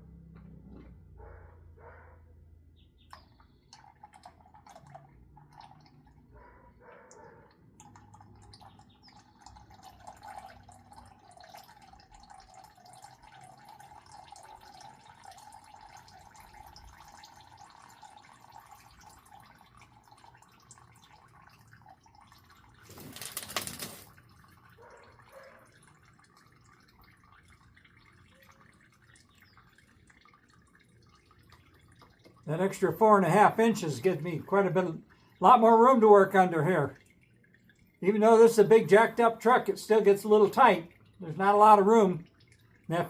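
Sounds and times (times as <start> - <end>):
oil draining into a pan: 3.0 - 23.3, 24.0 - 43.0.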